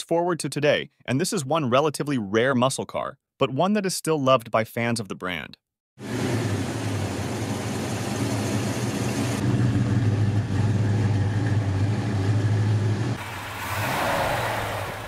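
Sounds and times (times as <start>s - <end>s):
car engine running at low revs: 6.0s - 14.0s
rushing noise: 12.3s - 15.0s.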